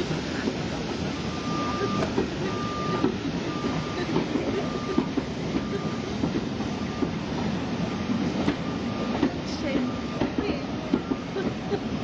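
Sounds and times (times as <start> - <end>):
train wheels rumbling and knocking: 0.0 - 12.0.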